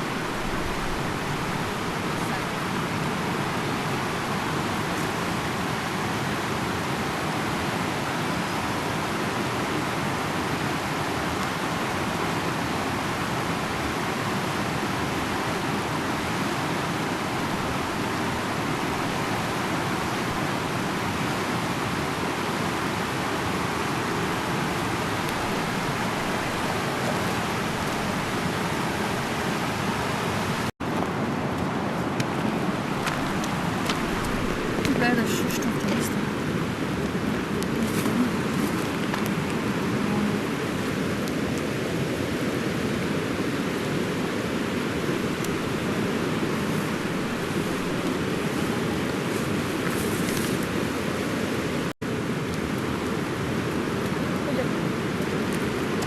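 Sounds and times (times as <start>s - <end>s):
fast-flowing river roaring: 0.0s - 56.0s.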